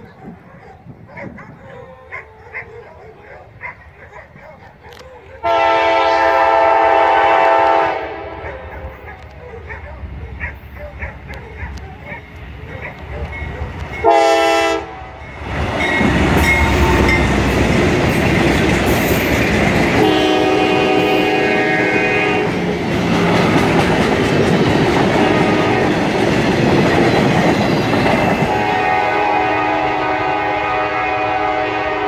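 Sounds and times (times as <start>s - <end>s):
train rumbling and clicking past: 3.5s - 32.0s
locomotive horn: 5.4s - 9.1s, 14.0s - 15.2s, 15.8s - 17.6s, 19.9s - 22.7s, 25.1s - 26.1s, 28.2s - 32.0s.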